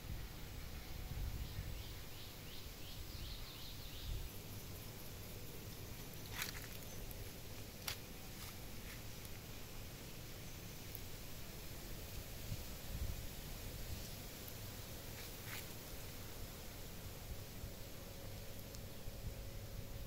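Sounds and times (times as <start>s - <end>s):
bird chirping: 1.4s - 7.2s.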